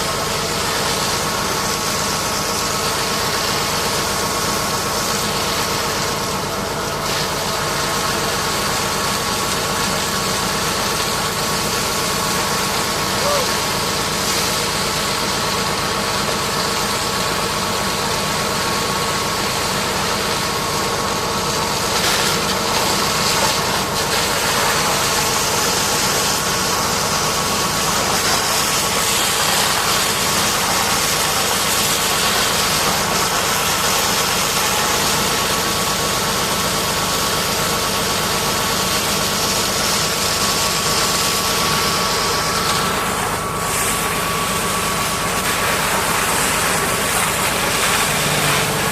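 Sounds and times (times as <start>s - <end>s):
pressure washer motor drone: 0.0s - 48.9s
water spray hiss: 21.8s - 36.3s, 39.0s - 48.9s.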